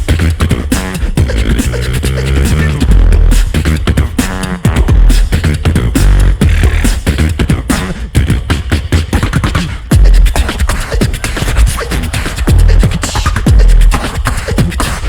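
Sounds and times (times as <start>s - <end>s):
beatboxing vocal drum sounds: 0.0s - 15.0s
deep sub-bass booms: 1.2s - 7.6s, 9.9s - 10.4s, 12.5s - 14.0s.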